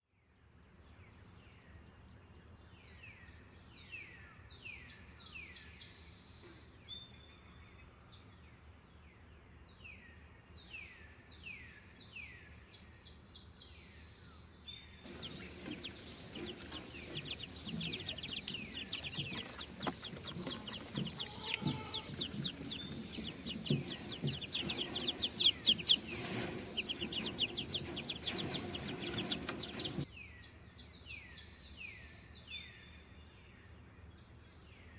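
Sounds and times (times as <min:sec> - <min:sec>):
birds chirping and trilling: 0:15.0 - 0:30.0.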